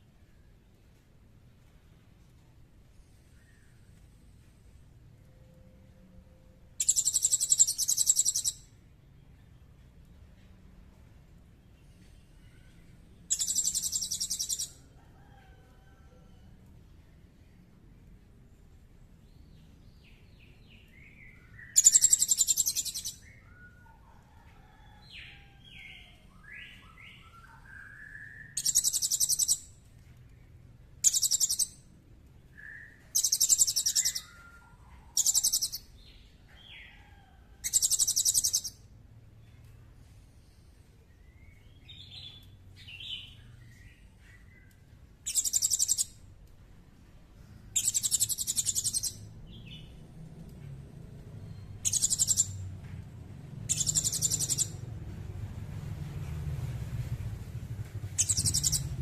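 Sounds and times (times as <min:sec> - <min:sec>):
soft low bird chirps: 0:06.8 - 0:08.6, 0:20.9 - 0:24.0, 0:32.6 - 0:35.9, 0:51.4 - 0:52.6.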